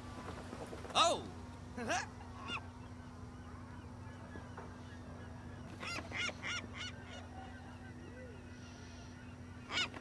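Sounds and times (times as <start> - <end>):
seagull squawks: 2.3 - 2.7, 3.3 - 10.0.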